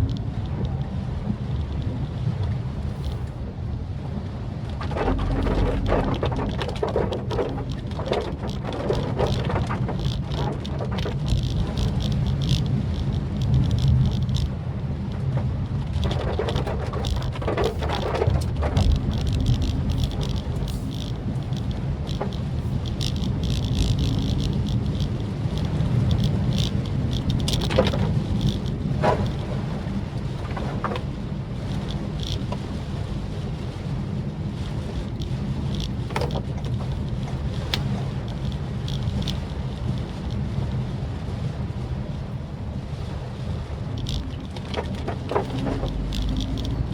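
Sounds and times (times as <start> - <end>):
light ticks: 0.0 - 3.4, 4.7 - 29.4, 35.0 - 40.6, 43.9 - 46.9
car engine and road rumble: 0.0 - 46.9
rain spattering on car: 0.0 - 46.9.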